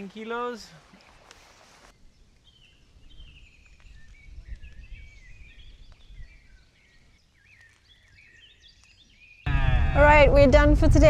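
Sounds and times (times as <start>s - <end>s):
birds chirping and warbling: 0.9s - 9.5s
low rumble: 9.5s - 11.0s.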